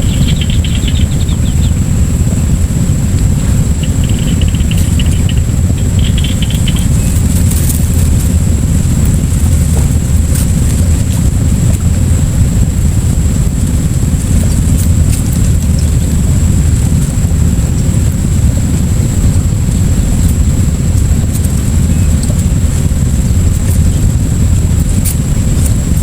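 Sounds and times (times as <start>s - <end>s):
high-pitched whine: 0.0s - 26.0s
low rumble: 0.0s - 26.0s.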